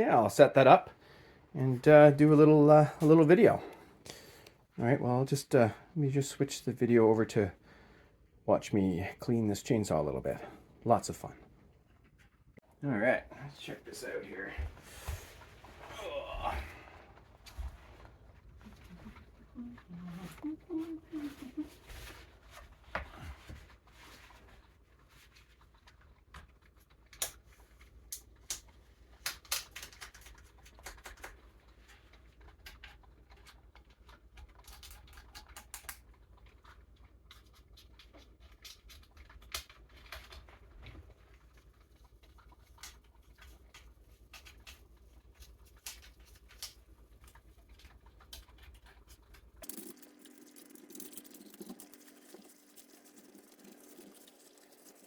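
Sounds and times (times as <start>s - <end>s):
steady low hum: 49.5s - 55.0s.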